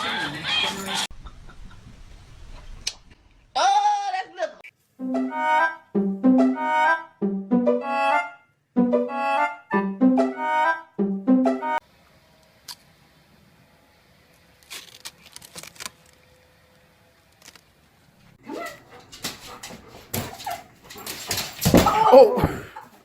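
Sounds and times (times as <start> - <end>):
dog whining: 18.4 - 22.6
knocks and clatter: 18.9 - 22.6.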